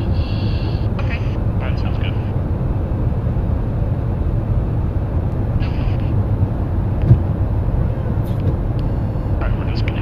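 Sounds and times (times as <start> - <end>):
jet engine rumble: 0.0 - 10.0
short thump: 7.0 - 7.3.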